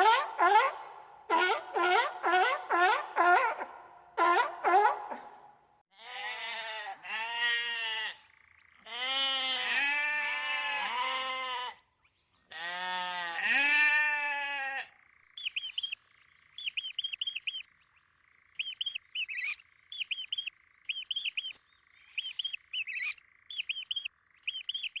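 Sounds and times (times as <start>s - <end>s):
drawn-out animal calls: 12.5s - 16.0s, 16.6s - 17.7s, 18.5s - 25.0s
short high chirps: 15.4s - 16.0s, 16.6s - 17.6s, 18.6s - 25.0s.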